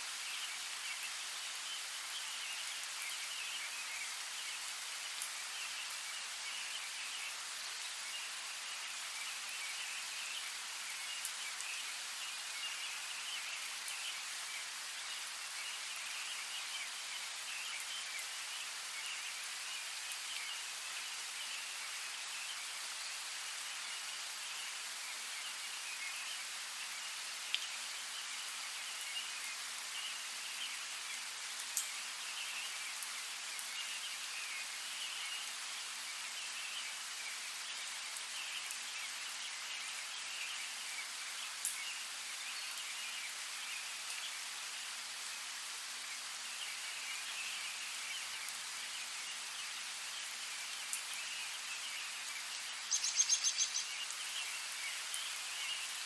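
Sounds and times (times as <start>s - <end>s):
steady rain: 0.0s - 56.0s
chorus of small chirping calls: 52.8s - 54.3s.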